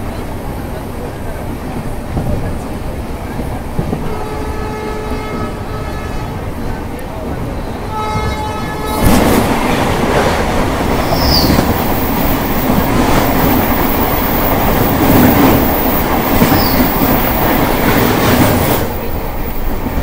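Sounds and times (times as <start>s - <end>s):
train rumbling at speed: 0.0s - 20.0s
high squeaks: 11.0s - 12.1s.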